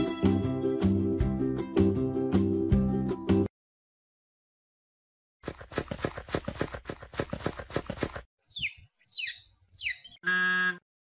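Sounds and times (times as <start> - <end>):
squirrel high squeals: 8.4 - 10.8.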